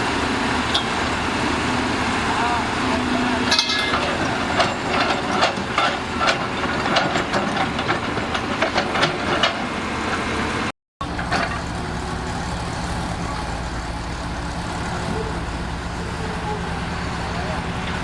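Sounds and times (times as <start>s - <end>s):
diesel engine idling: 9.7s - 18.0s.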